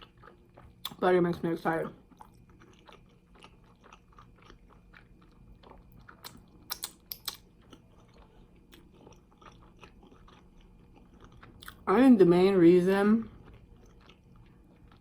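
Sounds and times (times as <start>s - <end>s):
person chewing chicken wings: 0.0s - 1.0s, 2.0s - 11.8s, 13.2s - 15.0s
crunches of biting: 6.1s - 7.8s.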